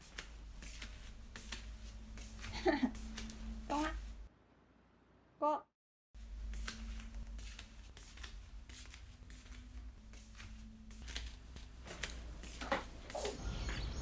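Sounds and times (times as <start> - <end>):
hands rustling: 0.0 - 4.1, 6.4 - 13.4.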